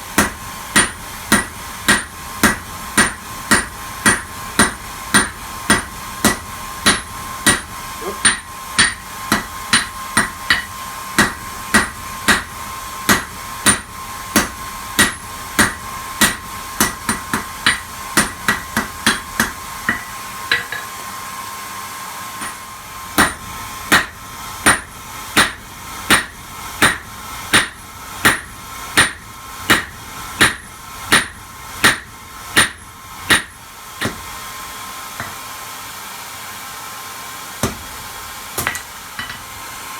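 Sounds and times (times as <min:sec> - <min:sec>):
hammer striking metal on anvil: 0:00.2 - 0:12.5, 0:13.1 - 0:21.0, 0:22.4 - 0:34.4, 0:35.2 - 0:35.4, 0:37.6 - 0:37.9, 0:38.6 - 0:39.6
anvil ringing: 0:38.6 - 0:39.5.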